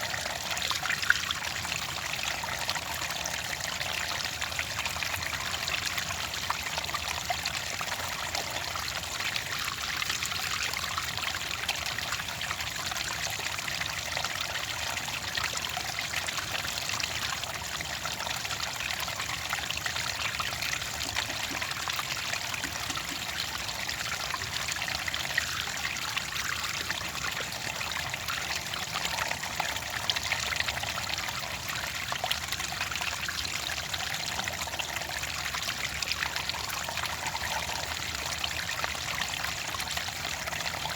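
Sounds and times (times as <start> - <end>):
water flowing and trickling: 0.0 - 40.9.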